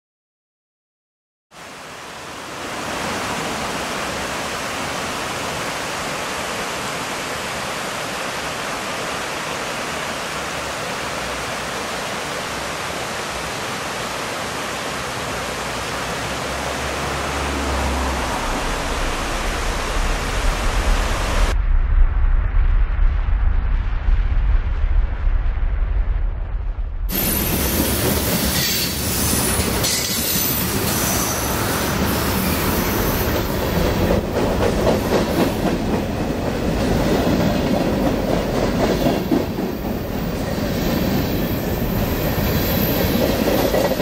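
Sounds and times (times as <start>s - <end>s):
approaching train rumble: 16.2s - 44.0s
steady rushing hiss: 27.1s - 44.0s.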